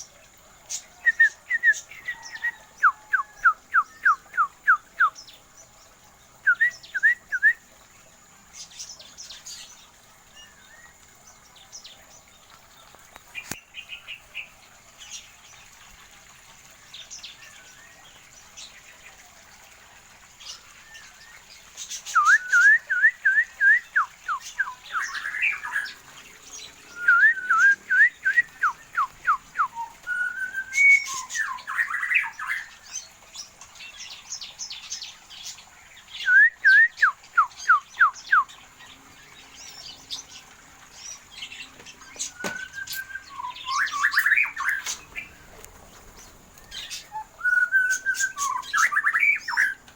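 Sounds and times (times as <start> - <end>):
cage birds whistling: 0.7 - 5.4, 6.4 - 7.7, 21.8 - 33.0, 33.8 - 49.9
bird chirps: 20.4 - 49.9.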